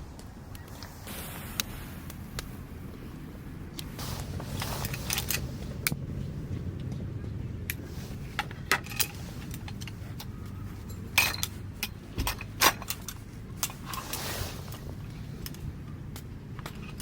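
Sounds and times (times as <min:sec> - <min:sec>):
steady low hum: 0:00.0 - 0:17.0
sharp clicks clinks and knocks: 0:08.4 - 0:14.2.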